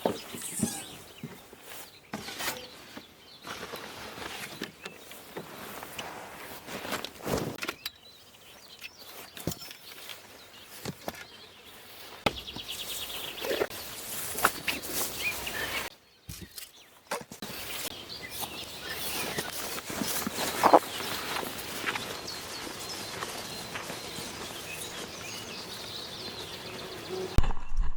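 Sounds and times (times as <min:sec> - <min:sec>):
bird chirps: 0:00.0 - 0:03.5, 0:07.6 - 0:27.9
rustling: 0:00.0 - 0:07.8, 0:17.4 - 0:27.4.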